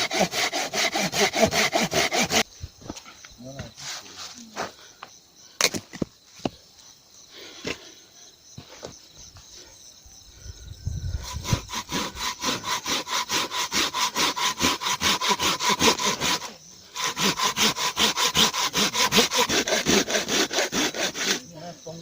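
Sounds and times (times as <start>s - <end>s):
rhythmic scraping strokes: 0.0s - 2.5s, 11.1s - 21.6s.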